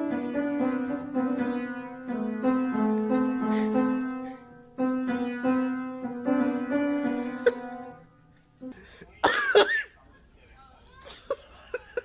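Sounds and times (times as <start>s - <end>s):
piano melody: 0.0s - 8.2s.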